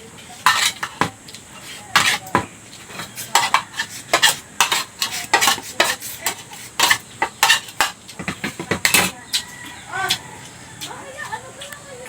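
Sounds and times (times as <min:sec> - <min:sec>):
metal utensils scraping a plate: 0:00.2 - 0:09.8.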